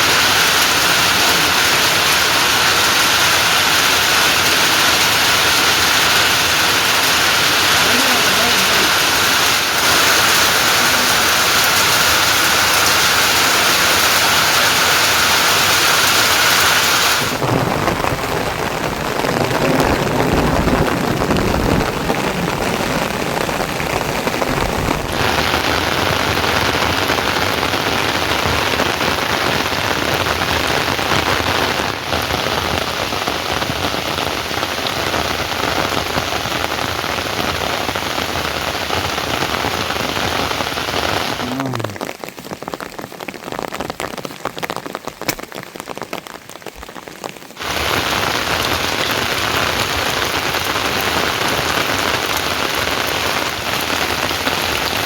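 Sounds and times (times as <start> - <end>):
heavy rain falling: 0.0 - 55.0
deep rumble: 17.4 - 26.4.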